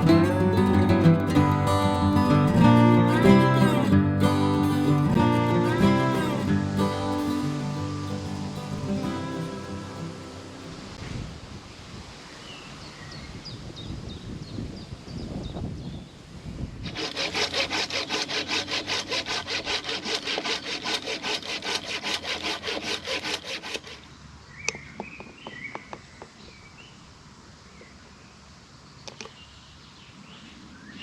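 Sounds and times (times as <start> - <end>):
hand saw cutting wood: 16.8 - 24.1
birds chirping: 23.7 - 27.0.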